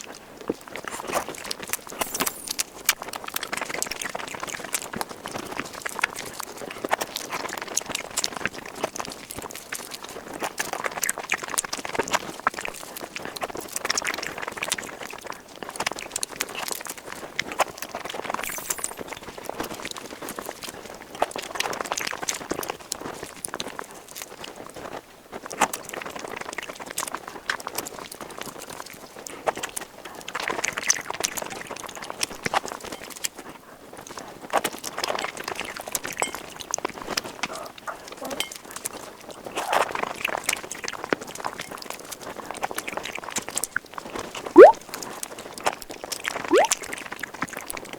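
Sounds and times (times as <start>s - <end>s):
noisy slurping: 46.5s - 46.8s.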